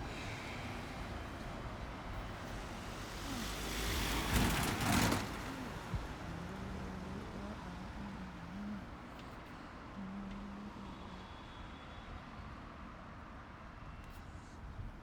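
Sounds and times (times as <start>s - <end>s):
low engine hum: 0.0s - 11.8s
road traffic: 0.0s - 15.0s
vehicle passing close: 2.4s - 8.5s.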